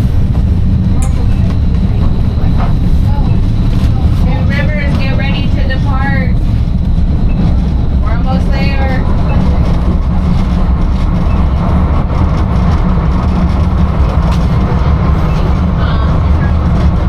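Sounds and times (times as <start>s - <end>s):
streetcar rumbling on track: 0.0s - 17.0s
faint voices: 1.0s - 6.5s, 8.0s - 11.9s, 13.8s - 17.0s.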